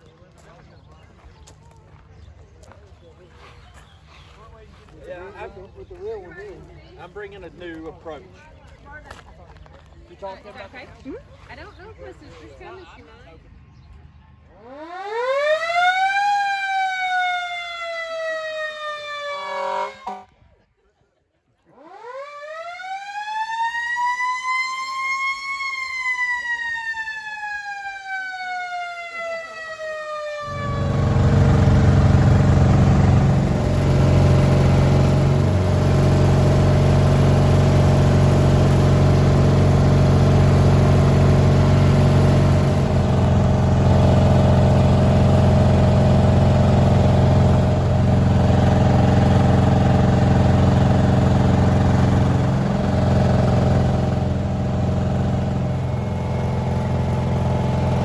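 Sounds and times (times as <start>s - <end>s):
loud vehicle engine running: 0.0s - 9.2s, 30.4s - 58.0s
siren winding down: 14.6s - 20.2s, 21.8s - 58.0s.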